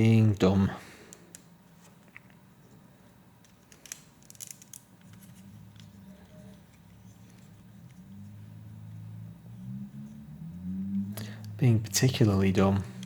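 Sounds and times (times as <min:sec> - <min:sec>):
plastic pieces clicking and rattling: 0:03.4 - 0:07.5.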